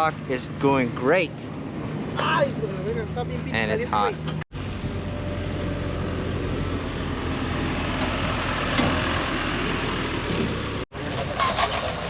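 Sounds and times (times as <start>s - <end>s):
vehicle engine running: 2.6s - 12.0s.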